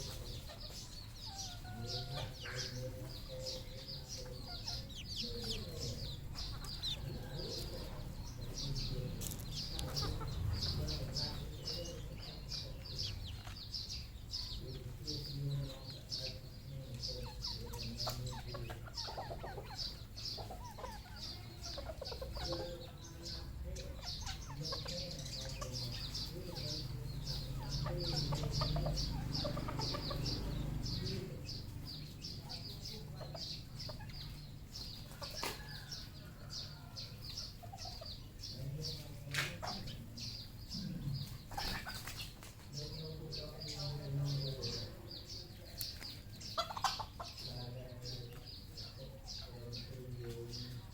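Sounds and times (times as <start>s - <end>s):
junglefowl clucking: 0.0s - 11.2s, 17.1s - 31.3s, 46.3s - 47.5s.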